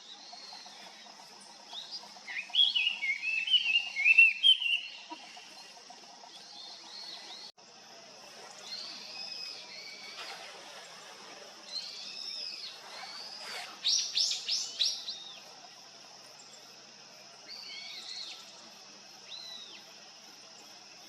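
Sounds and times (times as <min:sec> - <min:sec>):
bird twittering song: 0:00.0 - 0:07.5, 0:11.6 - 0:15.7, 0:19.2 - 0:20.6
faint high bird calls: 0:01.8 - 0:05.7.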